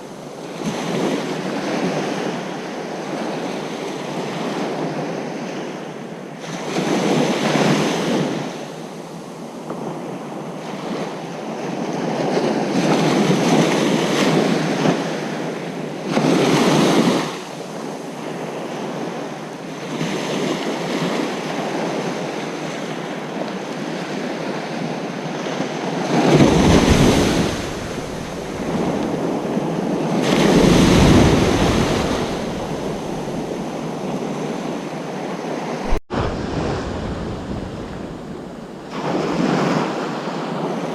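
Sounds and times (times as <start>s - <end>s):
ocean surf breaking: 26.0s - 40.9s.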